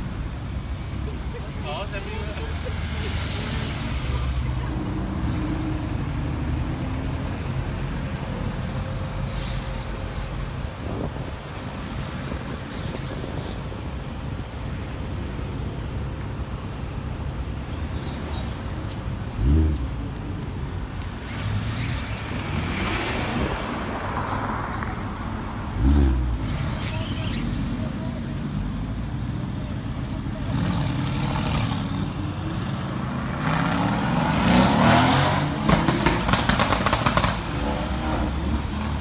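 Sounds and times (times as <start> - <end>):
car passing: 0.0 - 9.4, 18.3 - 39.0
car engines in road traffic: 0.0 - 39.0.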